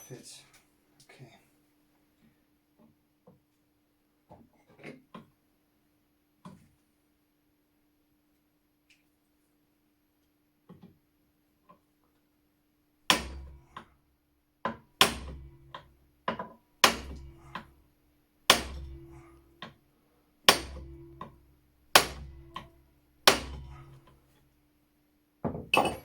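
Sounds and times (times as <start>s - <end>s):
hammer striking metal: 15.0s - 15.9s, 16.8s - 17.7s, 18.5s - 19.3s, 20.5s - 21.4s, 22.0s - 24.0s.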